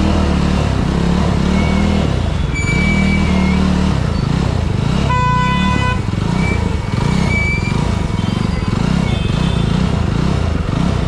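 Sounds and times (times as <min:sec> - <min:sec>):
motorcycle engine running: 0:00.0 - 0:11.0
vehicle horn: 0:05.1 - 0:06.6, 0:09.0 - 0:09.8.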